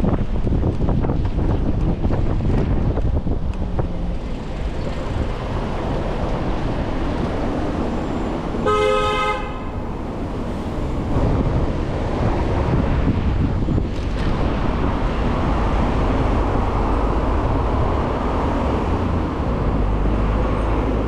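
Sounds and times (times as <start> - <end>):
road traffic noise: 0.0 - 21.0
wind: 0.0 - 21.0
vehicle horn toot: 8.6 - 10.9.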